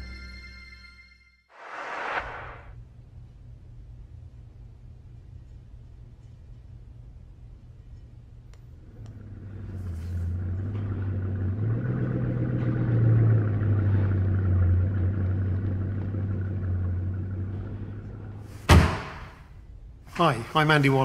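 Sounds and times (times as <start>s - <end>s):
car engine idling: 8.8s - 18.6s.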